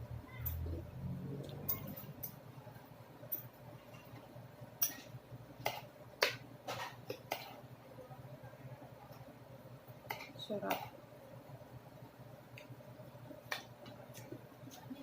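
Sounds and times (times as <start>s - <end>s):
utensils clinking on plate: 1.5s - 2.4s, 4.8s - 7.6s.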